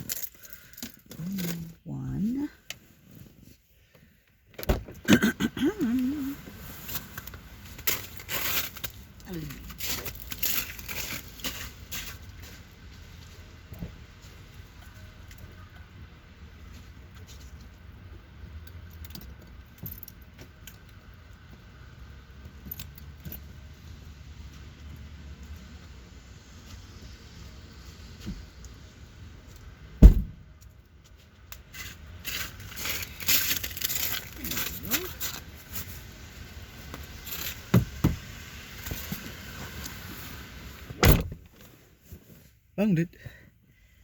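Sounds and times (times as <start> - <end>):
light clinks and rattles: 0.0 - 1.7, 17.2 - 23.9
sharp knocks: 30.0 - 30.4.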